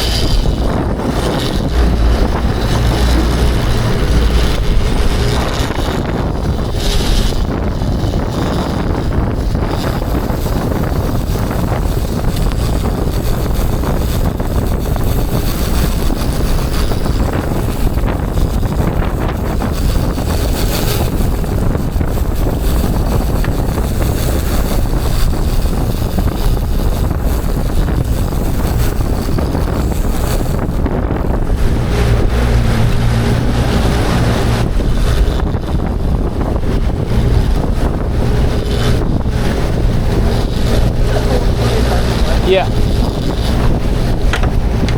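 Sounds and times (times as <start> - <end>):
water rushing: 0.0 - 8.3, 30.9 - 44.9
boat motor running: 0.0 - 44.9
wind buffeting microphone: 0.0 - 44.9.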